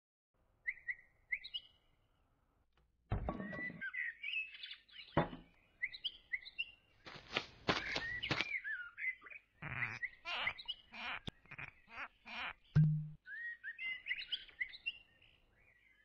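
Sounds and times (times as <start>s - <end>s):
small birds chirping and whistling: 0.6s - 1.8s, 3.3s - 6.9s, 7.7s - 16.0s.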